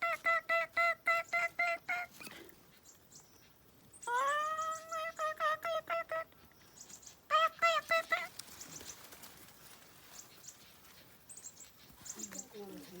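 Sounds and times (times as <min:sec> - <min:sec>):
baby bird calling: 0:00.0 - 0:09.1.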